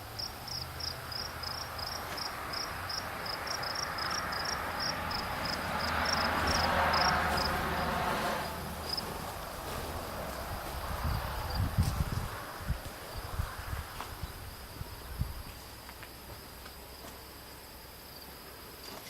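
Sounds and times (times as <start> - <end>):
cricket chirping: 0.0 - 19.0
rushing noise: 2.4 - 15.4.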